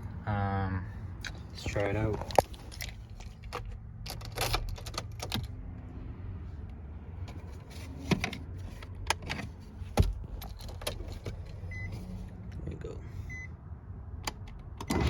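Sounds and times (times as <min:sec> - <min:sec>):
keys jangling with clicks: 0:02.3 - 0:05.5.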